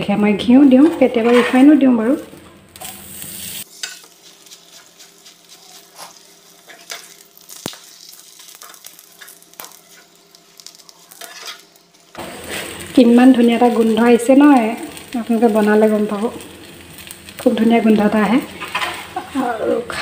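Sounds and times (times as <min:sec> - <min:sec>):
faint sizzling in a pan: 0:00.8 - 0:20.0
steel spatula scraping a pan: 0:02.8 - 0:07.1, 0:11.1 - 0:11.7, 0:18.6 - 0:19.2.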